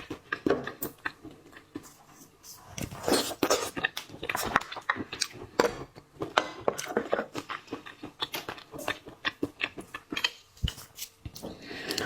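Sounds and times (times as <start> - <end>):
person chewing with wet clicks: 0.0 - 2.2, 3.0 - 12.0.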